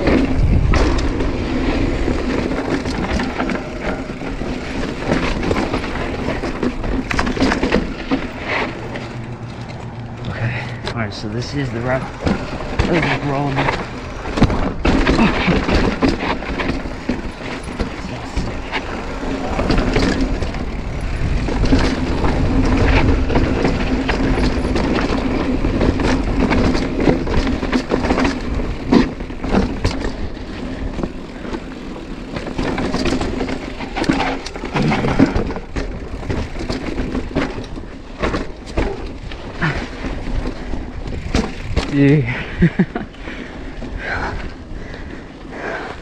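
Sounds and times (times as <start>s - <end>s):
wind rumbling on microphone: 0.0s - 31.4s
rear hub buzzing: 0.0s - 42.3s
bike tyres crunching over rocks: 0.0s - 46.0s.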